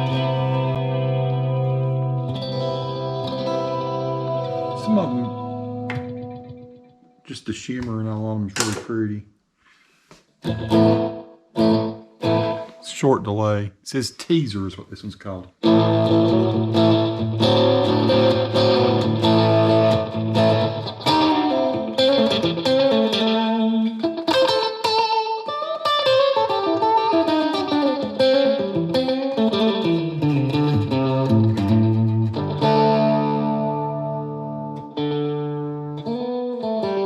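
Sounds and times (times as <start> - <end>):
electric guitar with delay: 0.0 - 7.1, 10.4 - 12.8, 15.6 - 37.0.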